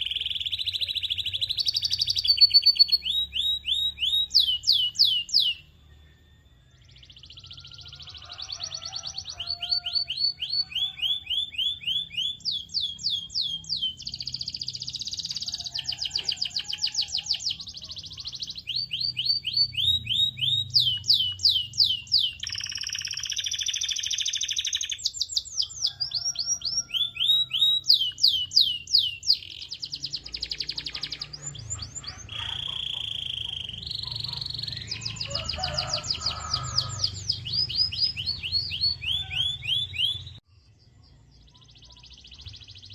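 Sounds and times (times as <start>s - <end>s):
canary singing trills: 0.0s - 42.9s.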